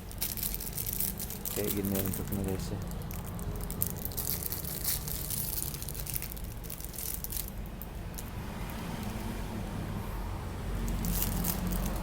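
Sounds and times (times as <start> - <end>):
packaging crinkling and crackling: 0.0 - 8.3, 10.9 - 12.0.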